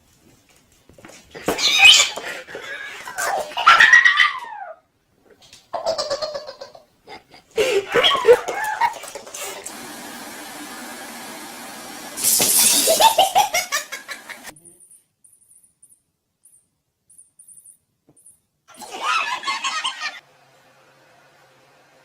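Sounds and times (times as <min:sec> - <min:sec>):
cats yowling: 0:01.5 - 0:04.9.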